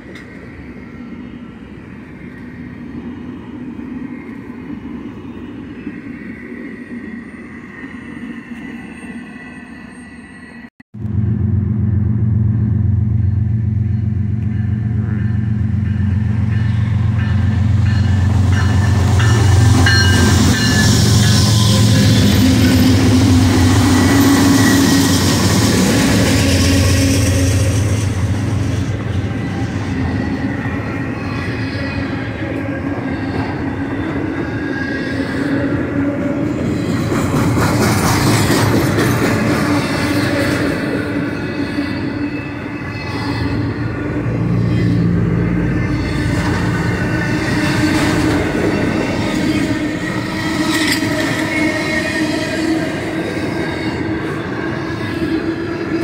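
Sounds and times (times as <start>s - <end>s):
diesel locomotive engines droning: 0.0s - 56.0s
train wheels rumbling on rails: 11.0s - 56.0s
thin wheel squeals: 41.3s - 43.9s.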